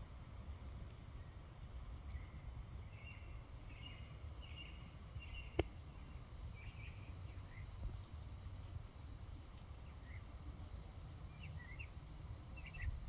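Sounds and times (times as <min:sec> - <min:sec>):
low outdoor rumble: 0:00.0 - 0:13.0
faint bird chirps: 0:02.1 - 0:07.8, 0:11.3 - 0:13.0.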